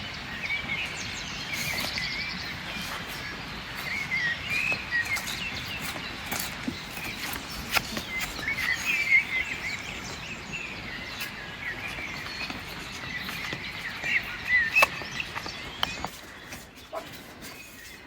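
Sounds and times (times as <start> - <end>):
outdoor background noise: 0.0 - 18.0
small birds chirping: 0.0 - 18.0.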